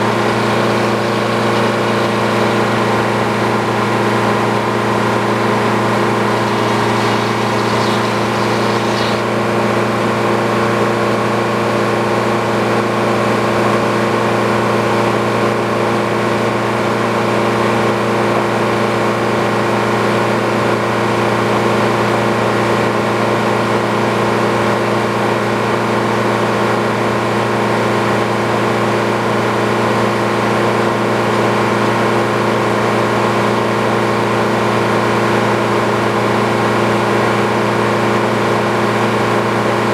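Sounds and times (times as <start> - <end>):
sawmill engine running: 0.0 - 9.9.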